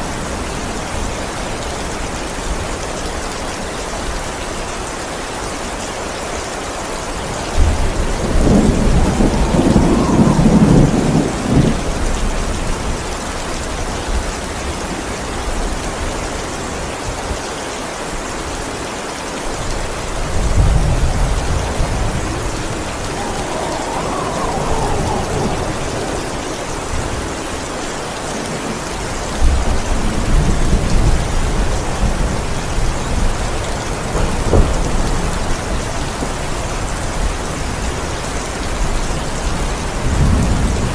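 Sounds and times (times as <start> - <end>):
heavy rain: 0.0 - 40.9
rolling thunder: 7.2 - 14.5, 19.6 - 40.9.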